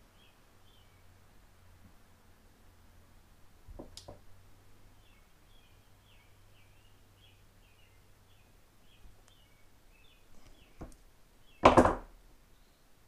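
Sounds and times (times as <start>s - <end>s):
bird chirping faintly: 0.0s - 1.3s, 4.8s - 11.8s, 12.4s - 13.0s
soft clicks of handled wires: 9.0s - 9.4s.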